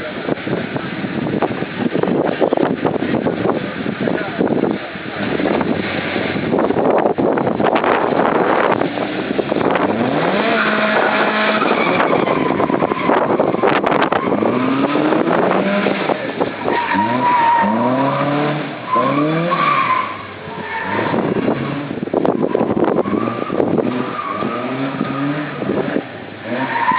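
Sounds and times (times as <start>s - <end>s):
steady rushing noise: 0.0s - 19.0s
car engine revving: 0.0s - 26.9s
tyres squealing: 8.6s - 26.9s.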